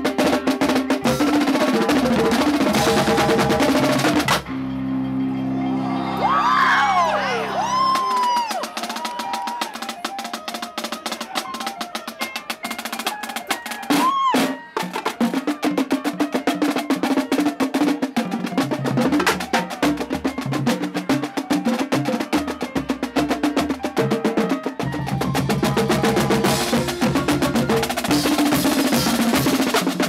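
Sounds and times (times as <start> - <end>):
bass drums: 0.0 - 4.5, 24.8 - 30.0
tenor drums: 0.0 - 4.6, 7.7 - 30.0
rising and falling whoop: 5.4 - 9.9, 13.9 - 14.5.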